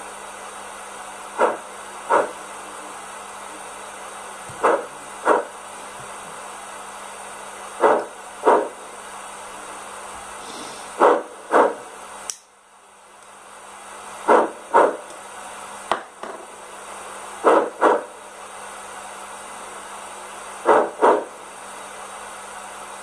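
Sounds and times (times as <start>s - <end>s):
short steam puffs: 10.3s - 11.9s
steam engine hiss from speaker: 10.3s - 12.0s.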